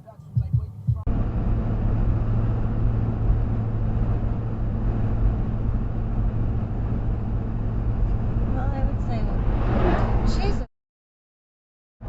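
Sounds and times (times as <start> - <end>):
car driving road noise: 0.1 - 10.7.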